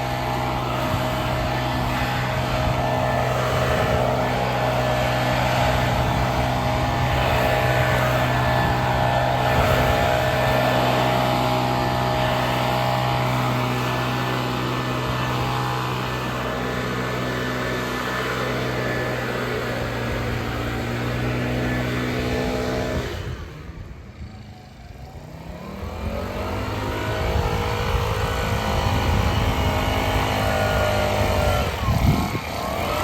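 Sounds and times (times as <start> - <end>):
small petrol engine running: 0.0 - 33.0.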